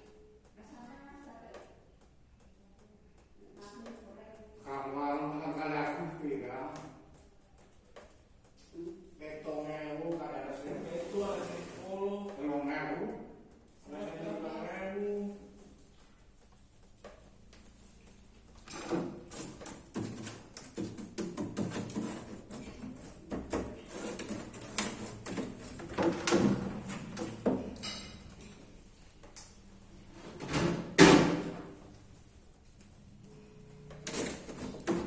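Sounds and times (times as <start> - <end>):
refrigerator parts knocking and clattering: 18.6 - 28.6, 30.3 - 31.8, 34.0 - 35.0.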